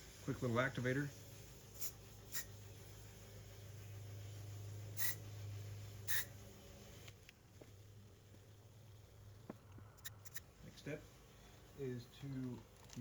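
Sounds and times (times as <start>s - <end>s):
spray bottle spritzes: 1.2s - 3.1s, 4.9s - 6.4s.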